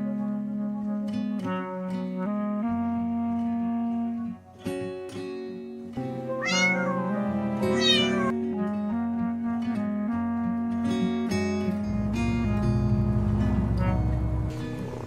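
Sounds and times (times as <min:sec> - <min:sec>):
background music: 0:00.0 - 0:15.0
cat meowing: 0:06.2 - 0:08.4.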